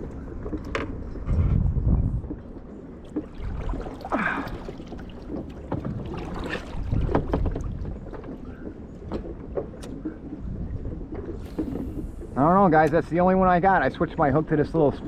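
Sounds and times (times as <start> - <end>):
water splashing around kayak: 0.0 - 15.0
wind rumbling on microphone: 0.0 - 15.0.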